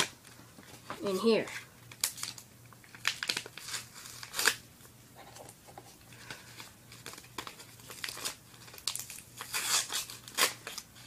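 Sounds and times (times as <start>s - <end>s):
paper envelope crinkling: 1.8s - 4.6s, 6.1s - 11.0s.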